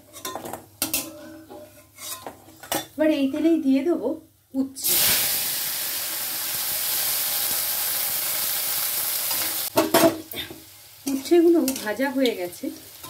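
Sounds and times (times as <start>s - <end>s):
vegetables sizzling in hot oil: 4.8s - 13.0s.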